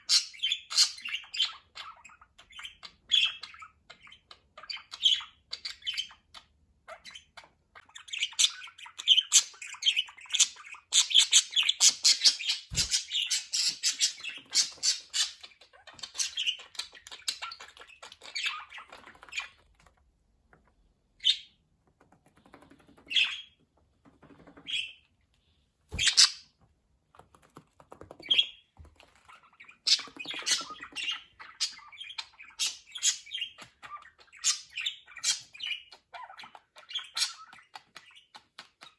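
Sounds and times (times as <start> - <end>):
budgerigars chattering: 0.0 - 19.6, 26.0 - 26.5, 29.4 - 38.9.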